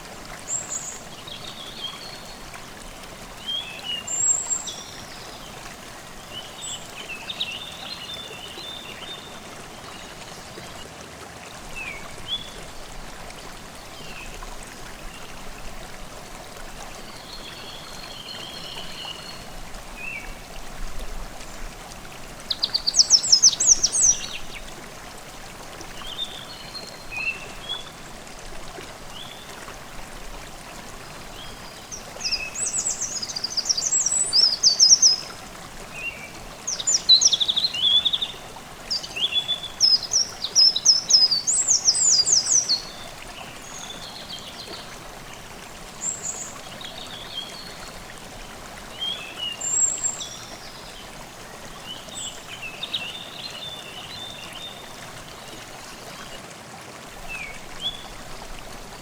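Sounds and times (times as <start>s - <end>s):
forest stream babbling: 0.0s - 59.0s
songbirds calling: 22.4s - 24.7s, 31.3s - 56.4s.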